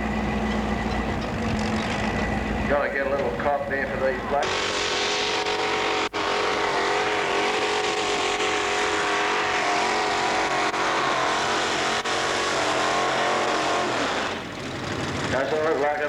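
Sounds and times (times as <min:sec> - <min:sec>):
tractor engine at high revs: 0:04.3 - 0:16.0.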